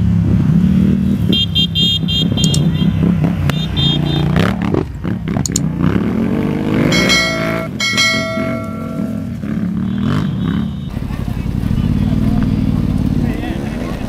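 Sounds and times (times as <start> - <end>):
off-road motorcycle engines revving: 0.0 - 14.0
steady high ringing tone: 6.9 - 9.4.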